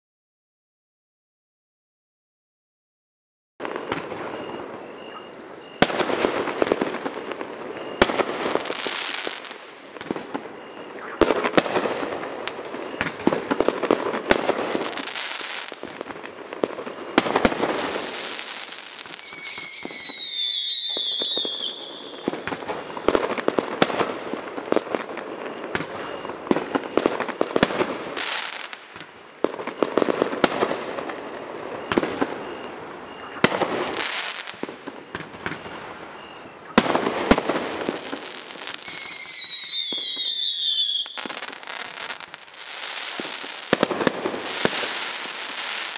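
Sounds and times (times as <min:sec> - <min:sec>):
fireworks popping and crackling: 0:03.6 - 0:05.2, 0:05.8 - 0:45.9
whistling firework falling in pitch: 0:03.6 - 0:45.9.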